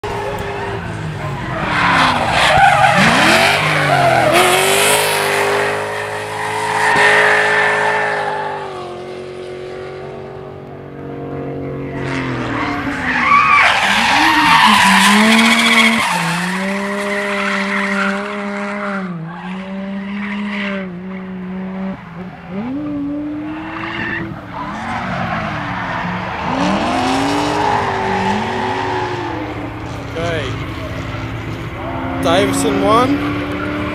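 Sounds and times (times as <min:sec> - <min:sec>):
tyres squealing and skidding: 0:00.0 - 0:08.9, 0:11.9 - 0:21.4, 0:22.4 - 0:33.9
car engine revving: 0:00.0 - 0:33.9.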